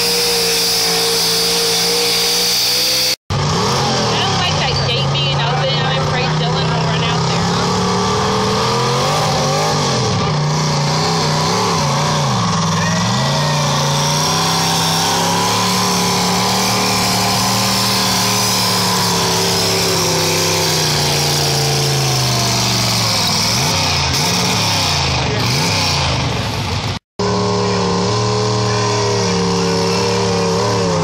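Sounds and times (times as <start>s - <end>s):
pulling vehicle engine revving: 0.0s - 31.0s.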